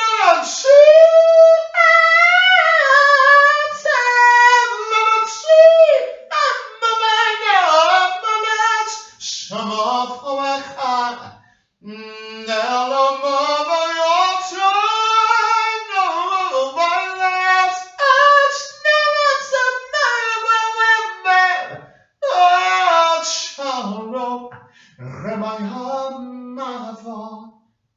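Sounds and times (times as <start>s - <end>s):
person singing unaccompanied: 0.0s - 27.5s.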